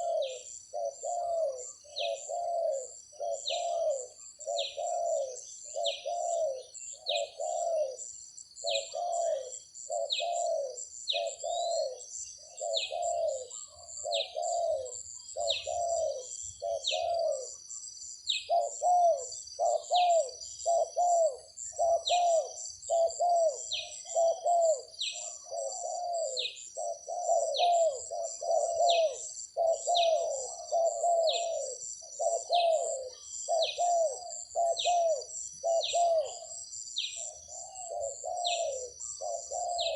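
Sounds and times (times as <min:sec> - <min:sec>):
doves cooing: 0:00.0 - 0:17.7, 0:18.3 - 0:39.9
bird chirping: 0:00.0 - 0:39.9
insects buzzing: 0:00.0 - 0:39.9.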